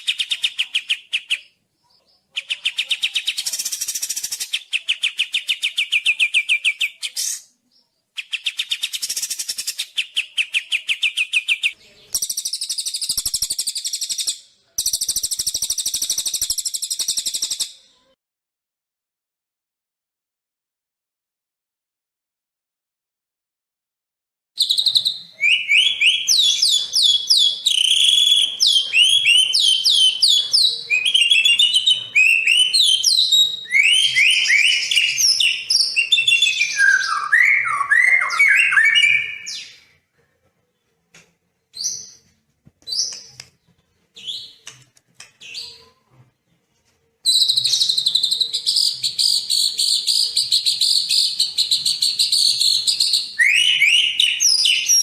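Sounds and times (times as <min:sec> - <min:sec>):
songbird singing: 0:00.0 - 0:18.1, 0:24.6 - 0:40.0, 0:47.2 - 0:55.0.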